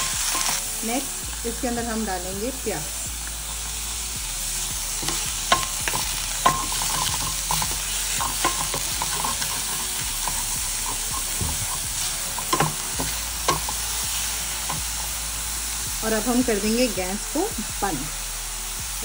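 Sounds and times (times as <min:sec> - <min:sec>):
food sizzling in a pan: 0:00.0 - 0:19.0
spatula knocking on metal pan: 0:05.0 - 0:13.8
wooden spatula scraping pan: 0:05.0 - 0:13.9.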